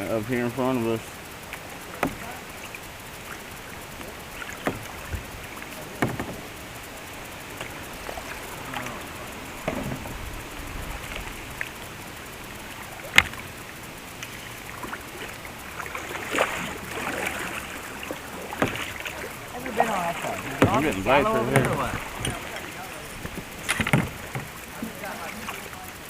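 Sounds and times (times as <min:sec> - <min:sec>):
paddle splashes: 0:00.0 - 0:26.0
water wash: 0:00.0 - 0:26.0
knocks against kayak hull: 0:02.0 - 0:02.3, 0:06.0 - 0:06.5, 0:09.6 - 0:10.2, 0:18.5 - 0:19.0, 0:20.6 - 0:22.6, 0:23.2 - 0:24.6.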